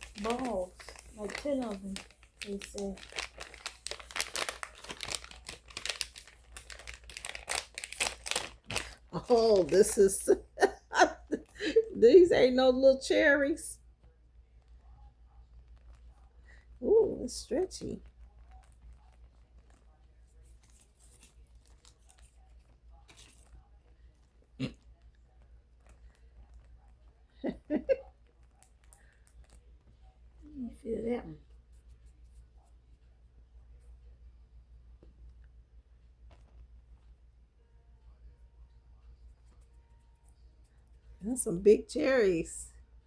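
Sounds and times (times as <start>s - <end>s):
slime crackling and rustling: 0.0s - 10.8s, 14.6s - 27.1s, 28.2s - 32.5s
plastic crinkling: 0.0s - 11.8s, 15.7s - 24.0s, 28.0s - 29.7s.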